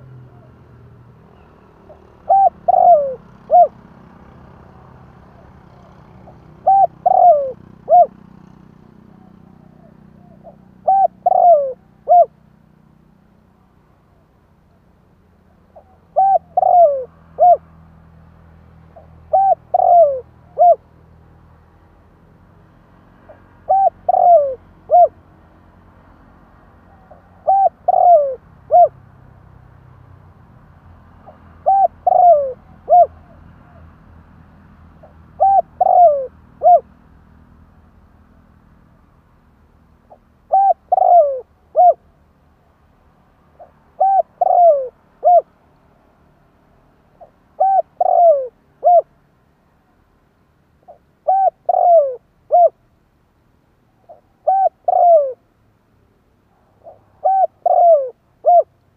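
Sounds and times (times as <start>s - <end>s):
dove cooing: 1.8s - 4.0s, 5.2s - 12.4s, 15.7s - 17.7s, 19.0s - 20.9s, 23.3s - 25.2s, 26.9s - 29.0s, 31.2s - 33.8s, 35.0s - 37.0s, 40.1s - 42.0s, 43.6s - 45.5s, 47.2s - 49.1s, 50.8s - 52.8s, 54.0s - 55.4s, 56.8s - 58.7s.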